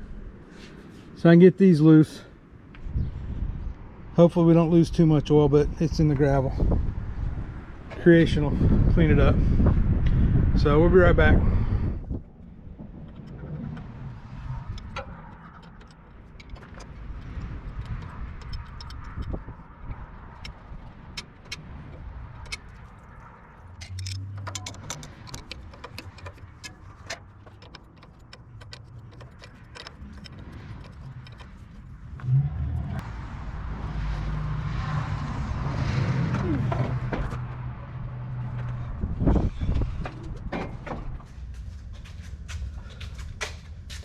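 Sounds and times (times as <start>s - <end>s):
hand tools clinking on metal: 23.8s - 31.6s
low rumble: 29.8s - 43.1s.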